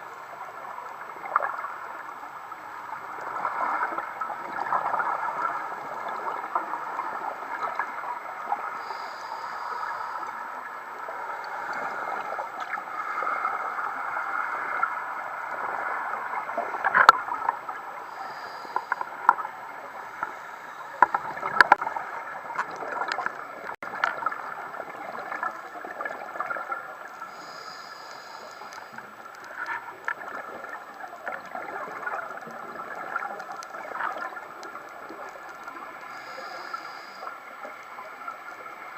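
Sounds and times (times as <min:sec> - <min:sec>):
underwater watery rush: 0:00.0 - 0:38.9
sharp clicks and crackles: 0:16.7 - 0:17.8, 0:20.2 - 0:24.4, 0:28.1 - 0:35.8.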